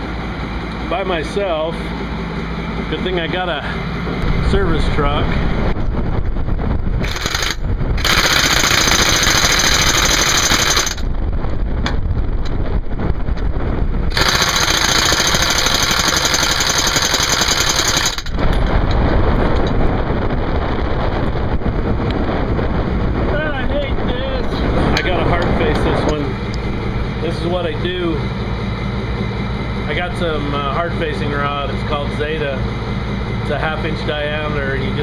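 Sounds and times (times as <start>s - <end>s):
motor running steadily: 0.0s - 35.0s
pneumatic impact wrench hammering: 7.0s - 11.0s, 14.1s - 18.4s.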